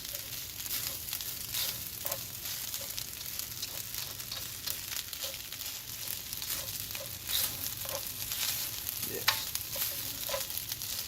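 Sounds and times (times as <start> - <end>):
rice sizzling in a wok: 0.0 - 11.0
spatula scraping a wok: 0.0 - 11.0.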